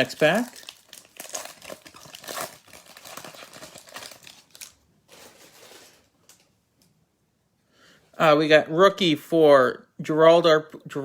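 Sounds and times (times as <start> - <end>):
plastic wrapper crinkling: 0.0 - 6.5.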